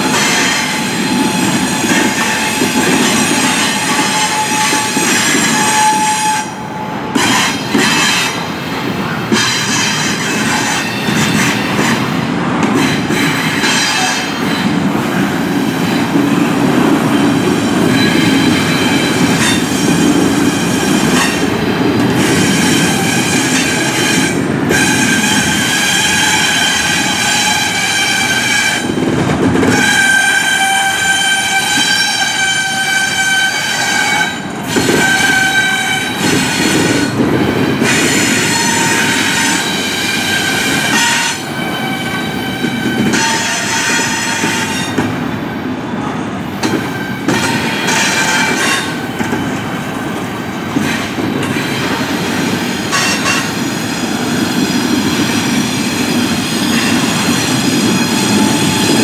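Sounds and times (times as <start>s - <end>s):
steel wheels squealing: 17.1s - 21.5s.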